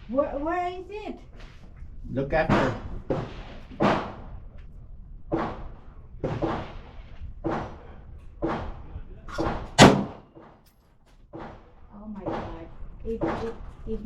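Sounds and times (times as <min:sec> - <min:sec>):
pistol shots: 0:08.4 - 0:10.3.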